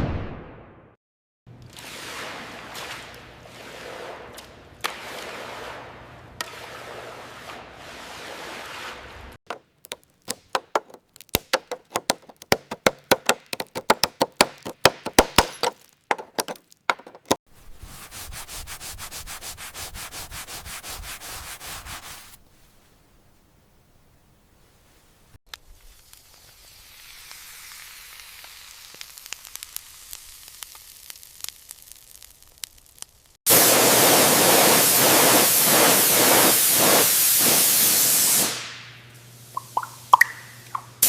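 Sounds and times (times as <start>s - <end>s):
power tool rattling: 9.5s - 17.4s
sharp taps: 9.5s - 17.4s.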